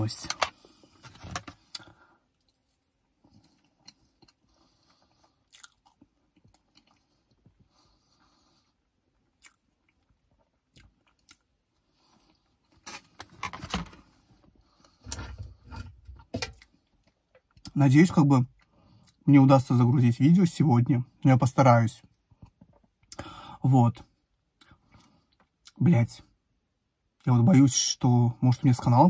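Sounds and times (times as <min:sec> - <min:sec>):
person chewing cake: 0:03.2 - 0:08.4, 0:09.1 - 0:12.4.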